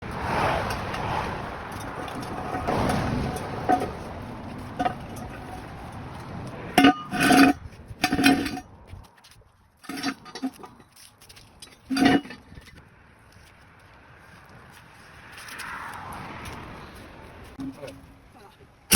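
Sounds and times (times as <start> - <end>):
metal tools clanking: 1.7 - 4.1, 4.7 - 5.7, 6.7 - 8.7, 9.8 - 11.0, 11.6 - 12.8, 17.6 - 18.2.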